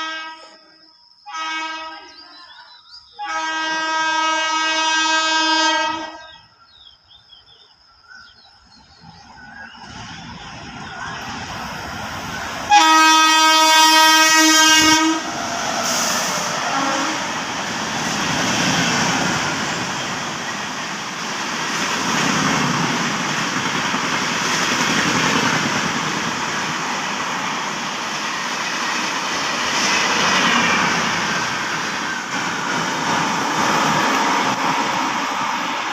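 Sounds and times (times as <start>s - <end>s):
locomotive horn blasts: 0.0s - 0.6s, 1.3s - 2.1s, 3.2s - 6.3s, 12.7s - 15.3s, 16.0s - 17.4s
train rumble passing: 6.3s - 35.9s.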